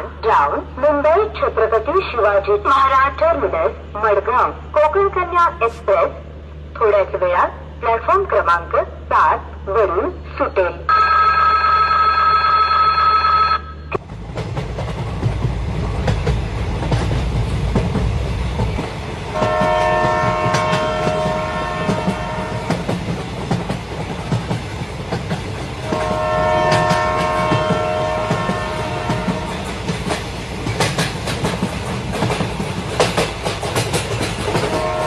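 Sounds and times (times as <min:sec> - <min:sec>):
train wheels clattering on rails: 0:14.0 - 0:35.0
locomotive horn blasts: 0:19.4 - 0:22.8, 0:25.9 - 0:29.6, 0:34.7 - 0:35.0.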